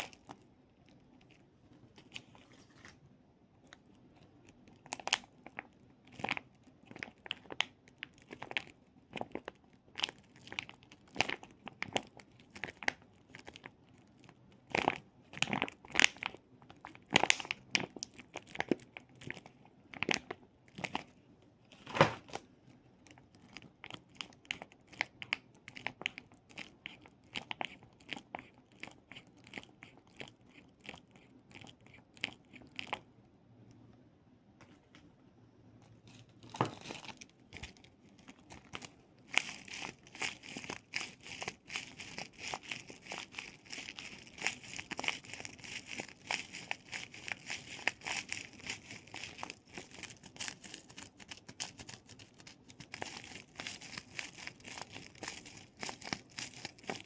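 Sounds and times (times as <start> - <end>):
plastic crinkling and clicking: 35.9 - 57.0.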